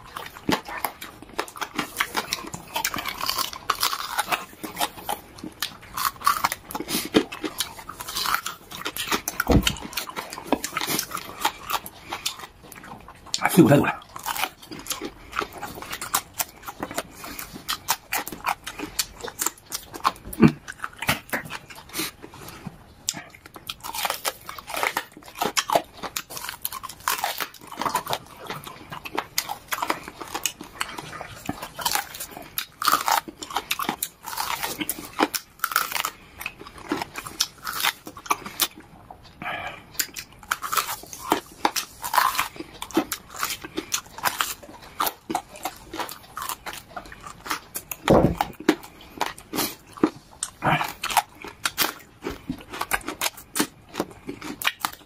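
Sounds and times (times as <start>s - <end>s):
person gnawing and chewing: 0.0s - 55.0s
lips and teeth clicking: 40.0s - 55.0s.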